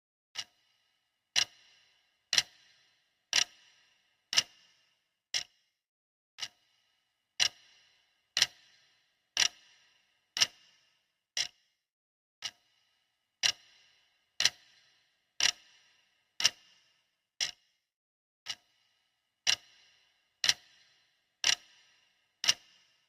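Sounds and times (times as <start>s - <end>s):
clock ticking: 0.4s - 0.7s, 1.3s - 5.6s, 6.4s - 6.7s, 7.4s - 11.7s, 12.4s - 12.7s, 13.4s - 17.7s, 18.5s - 23.0s.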